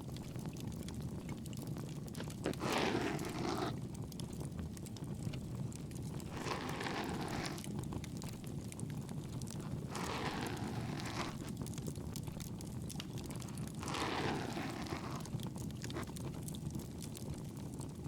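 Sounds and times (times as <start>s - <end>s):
bonfire crackling: 3.8s - 13.8s.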